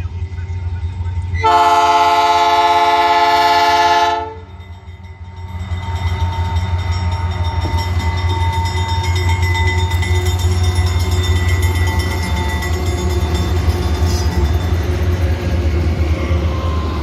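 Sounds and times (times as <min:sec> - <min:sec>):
low rumble of locomotives: 0:00.0 - 0:17.0
locomotive air horn blast: 0:01.4 - 0:04.5.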